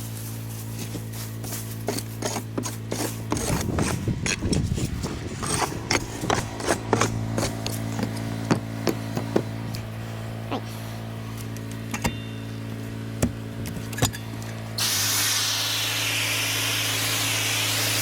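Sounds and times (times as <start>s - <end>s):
steady low hum: 0.0s - 17.9s
roof tiles scraping and clicking: 1.8s - 9.8s.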